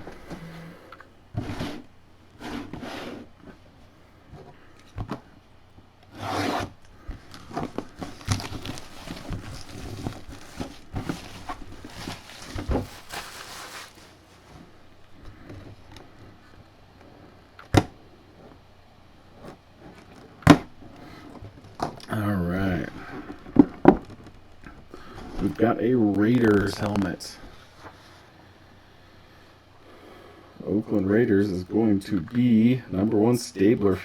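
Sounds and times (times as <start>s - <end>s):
packaging rustling and tearing: 6.1s - 14.6s.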